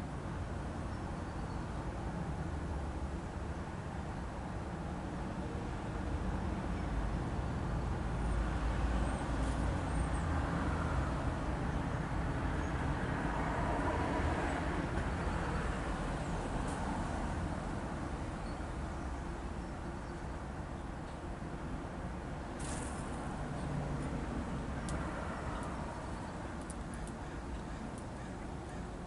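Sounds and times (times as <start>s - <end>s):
passing vehicle rumble: 8.0s - 19.7s, 22.0s - 29.0s.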